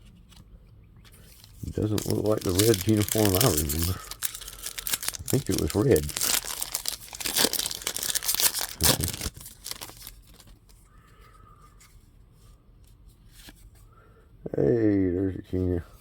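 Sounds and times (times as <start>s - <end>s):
wrapper tearing and crinkling: 1.4s - 10.7s.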